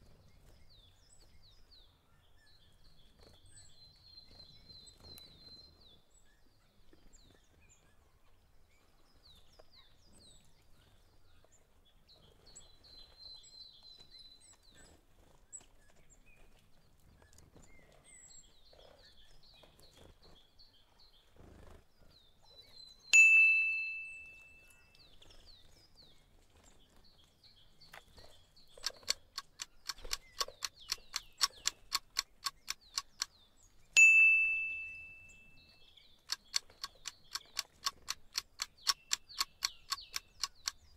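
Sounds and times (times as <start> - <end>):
birds chirping faintly: 0.0 - 40.9
bell-like ding: 23.2 - 24.8, 34.0 - 35.6
clock ticking: 28.8 - 33.3, 36.3 - 40.8.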